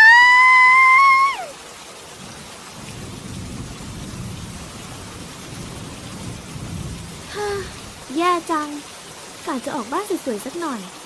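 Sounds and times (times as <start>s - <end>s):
rain falling: 0.0s - 11.0s
low rolling thunder: 2.2s - 8.5s.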